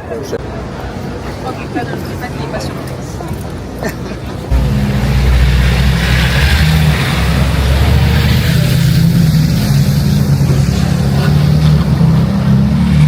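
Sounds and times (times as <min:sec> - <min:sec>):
hiss: 0:04.5 - 0:12.1
motor engine running: 0:04.5 - 0:12.3.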